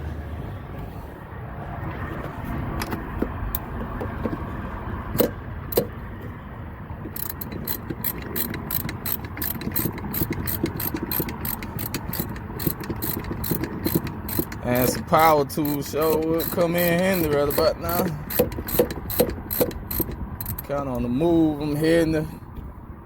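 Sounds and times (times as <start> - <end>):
metal clicks and clanks: 7.0 - 20.9
ratchet pawl clicks: 7.1 - 20.8.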